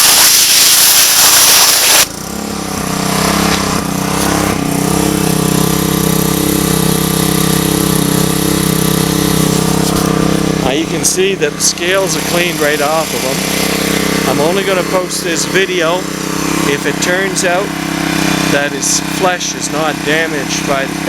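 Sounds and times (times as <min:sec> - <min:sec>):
pressure washer spray hissing: 0:00.0 - 0:02.1, 0:06.2 - 0:15.0
gas engine running: 0:00.0 - 0:21.0.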